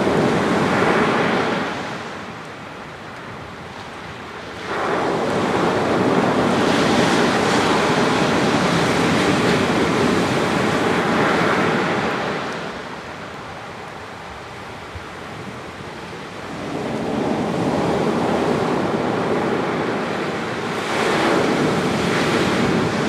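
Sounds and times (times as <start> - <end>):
wave wash: 0.0 - 2.8, 3.8 - 23.0
wave breaking on sand: 4.6 - 12.8.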